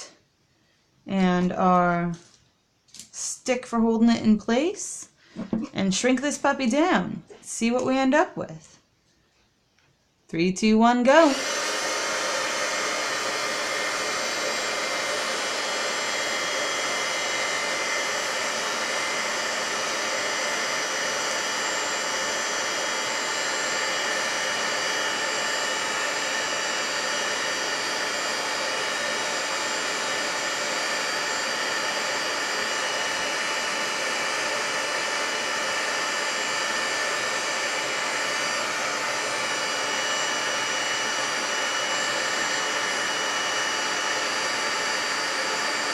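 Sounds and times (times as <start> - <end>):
fan whine: 11.1 - 45.9
heat gun blowing air: 11.2 - 45.9.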